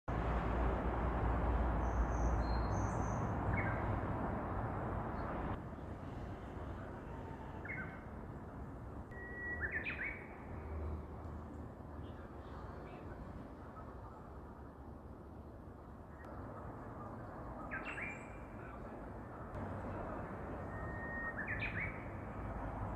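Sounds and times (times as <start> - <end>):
bird singing: 1.8 - 4.0, 9.1 - 11.0, 17.6 - 18.8, 20.5 - 22.4.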